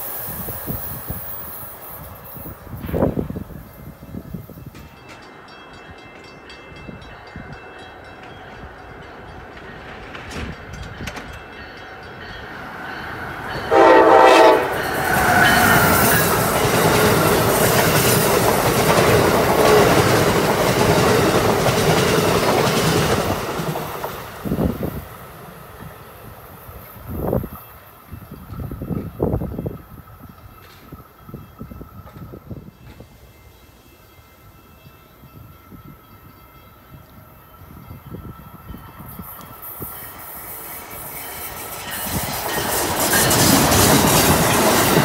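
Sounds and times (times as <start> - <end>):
train rumble: 0.0 - 33.4, 34.1 - 45.0
wheels clacking on rails: 0.0 - 33.6, 34.6 - 45.0
train horn blast: 13.6 - 15.0.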